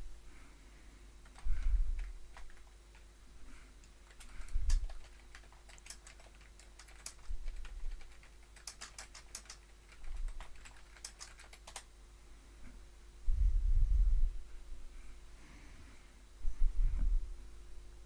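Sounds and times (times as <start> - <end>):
keyboard keystroke clicks: 3.8 - 11.9.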